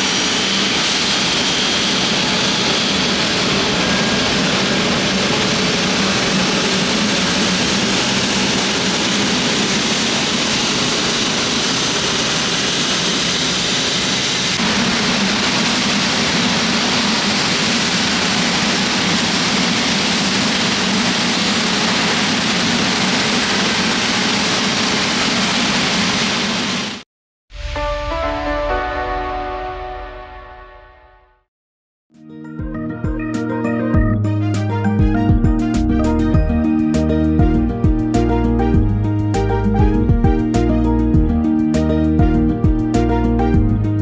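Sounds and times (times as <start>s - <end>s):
jet engines roaring: 0.0s - 27.0s
music: 27.6s - 31.5s, 32.1s - 44.0s.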